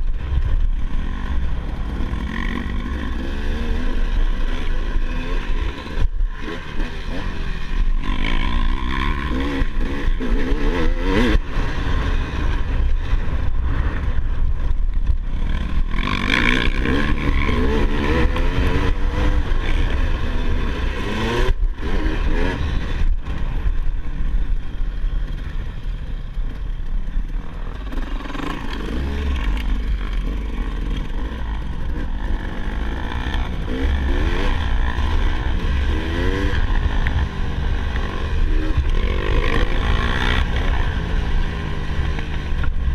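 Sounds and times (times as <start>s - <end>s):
dirt bike engine revving: 0.0s - 42.9s.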